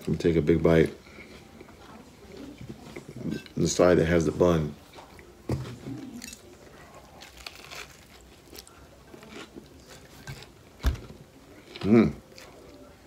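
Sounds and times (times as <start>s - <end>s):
chewing with crunches: 4.8s - 13.0s
biting into crispy food: 6.2s - 10.5s.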